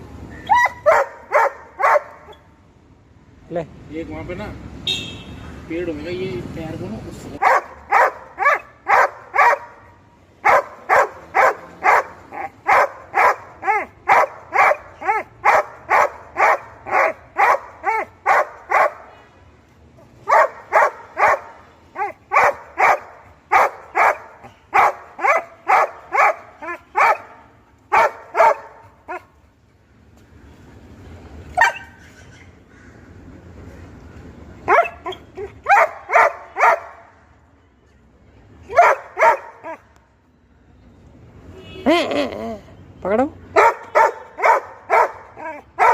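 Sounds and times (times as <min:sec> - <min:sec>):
dog barking: 0:00.5 - 0:02.4, 0:07.4 - 0:09.8, 0:10.4 - 0:19.1, 0:20.2 - 0:29.3, 0:31.6 - 0:31.9, 0:34.7 - 0:37.0, 0:38.7 - 0:39.8, 0:43.6 - 0:45.9.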